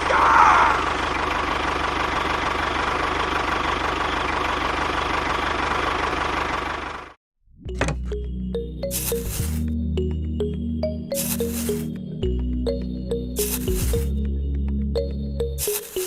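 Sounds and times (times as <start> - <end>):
music: 7.6 - 16.0.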